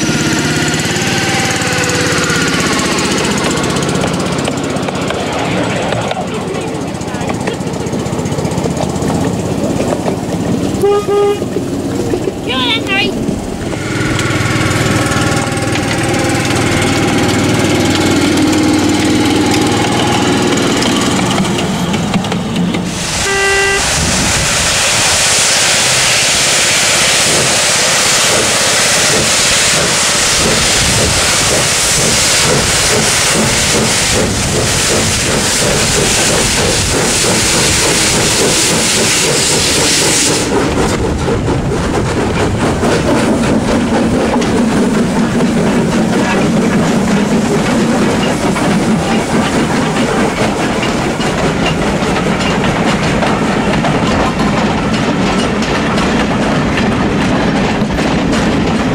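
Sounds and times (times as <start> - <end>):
steam engine humming: 0.0 - 58.9
steam whistle toot: 10.8 - 11.4, 23.0 - 24.2
steam hissing: 11.5 - 58.7.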